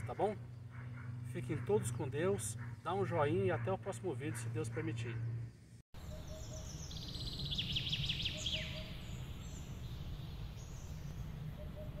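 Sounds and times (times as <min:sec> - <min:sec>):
small bird chirping: 0:06.0 - 0:12.0.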